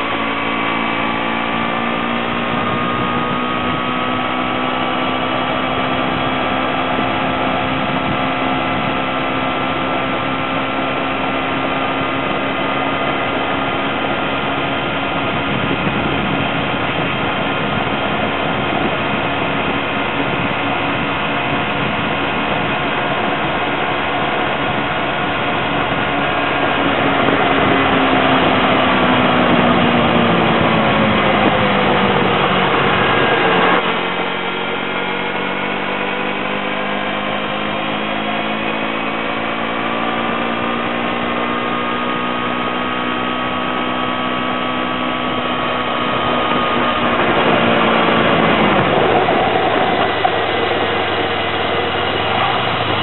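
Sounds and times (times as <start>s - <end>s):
motorcycle engine running: 0.0s - 53.0s
wind and road noise: 0.0s - 53.0s.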